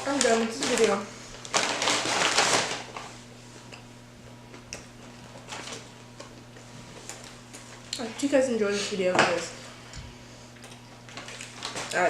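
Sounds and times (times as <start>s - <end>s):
paper packaging crinkling: 0.0s - 3.2s, 5.3s - 6.3s, 11.1s - 12.0s.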